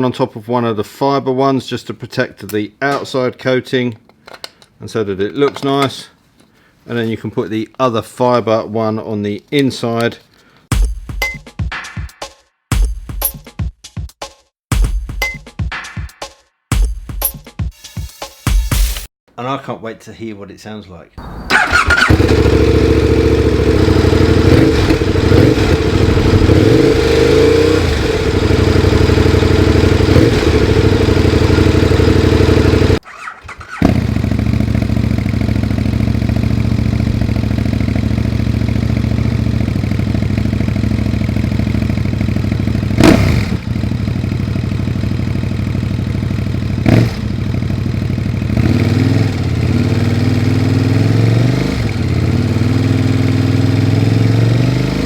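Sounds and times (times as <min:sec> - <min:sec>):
motorcycle engine idling and revving: 0:21.2 - 0:55.0.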